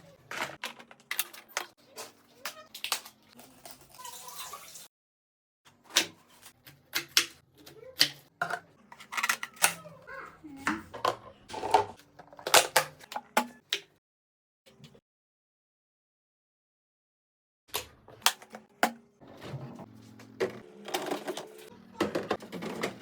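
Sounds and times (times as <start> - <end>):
containers clicking and knocking: 8.0 - 9.8, 10.6 - 13.9.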